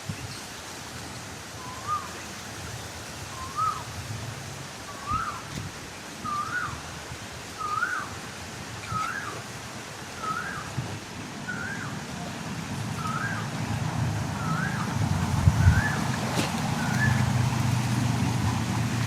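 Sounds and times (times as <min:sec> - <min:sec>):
bird whistling: 0:01.6 - 0:02.1, 0:03.4 - 0:03.8, 0:05.0 - 0:05.4, 0:06.2 - 0:06.8, 0:07.6 - 0:08.1, 0:10.2 - 0:10.7, 0:11.5 - 0:11.9, 0:13.0 - 0:13.4, 0:14.4 - 0:14.9, 0:15.6 - 0:16.0, 0:16.8 - 0:17.2
vehicle engine hum: 0:11.2 - 0:19.0.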